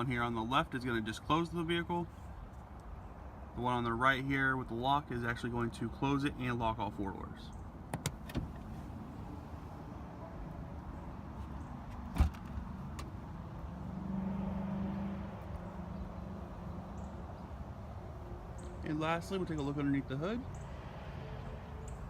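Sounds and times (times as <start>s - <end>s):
tailgate thump shutting: 12.0s - 12.6s.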